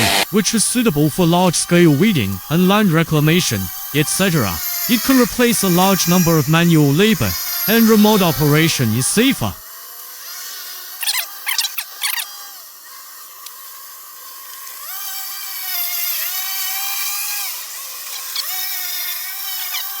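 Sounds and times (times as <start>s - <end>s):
lawn mower high whine: 0.0s - 9.6s
loud rasping bursts: 0.0s - 9.6s.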